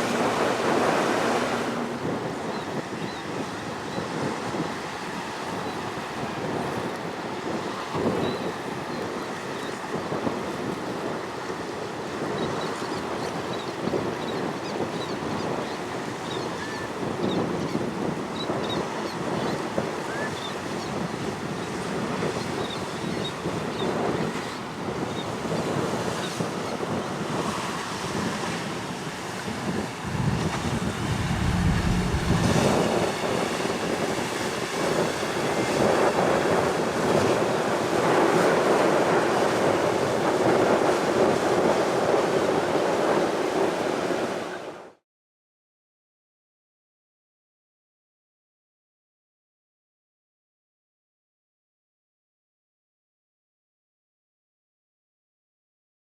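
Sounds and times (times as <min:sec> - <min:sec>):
wind buffeting microphone: 0:00.0 - 0:44.7
choppy waves washing: 0:00.0 - 0:44.8.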